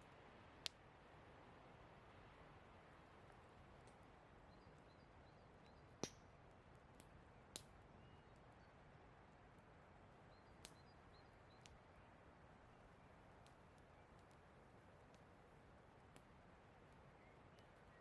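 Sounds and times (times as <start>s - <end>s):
campfire crackling and popping: 6.0s - 7.8s, 13.4s - 17.9s.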